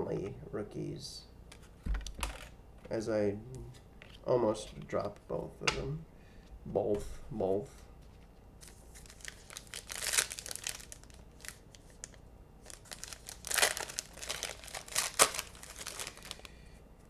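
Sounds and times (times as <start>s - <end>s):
plastic wrapper crinkling and tearing: 8.6s - 16.5s.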